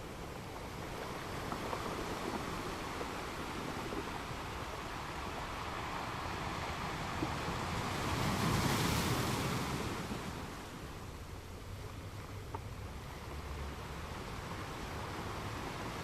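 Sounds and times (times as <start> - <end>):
ocean waves on beach: 0.0 - 16.0.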